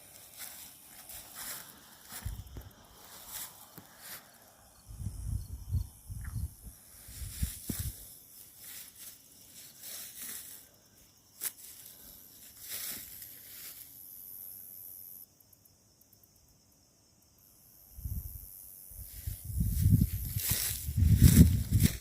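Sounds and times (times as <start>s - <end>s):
footsteps crunching dry leaves: 0.0s - 4.4s, 7.0s - 10.7s, 11.3s - 13.9s, 19.2s - 22.0s
insect trill: 0.0s - 22.0s.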